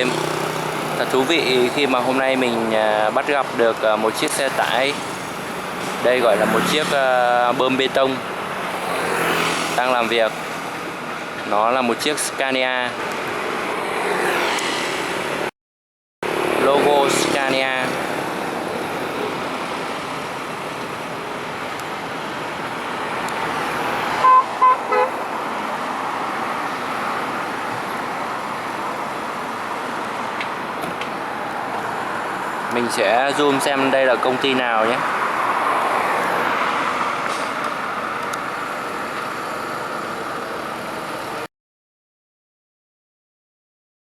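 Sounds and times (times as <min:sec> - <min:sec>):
motor vehicle noise: 0:00.0 - 0:15.5, 0:16.2 - 0:41.5
road traffic noise: 0:00.0 - 0:15.6, 0:16.2 - 0:41.5.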